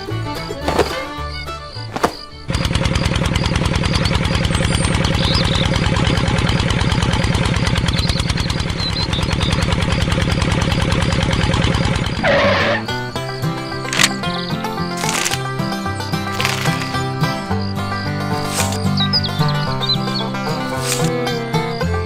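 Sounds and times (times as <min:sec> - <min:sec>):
music: 0:00.0 - 0:02.6, 0:12.2 - 0:22.0
tractor engine chugging: 0:00.0 - 0:22.0.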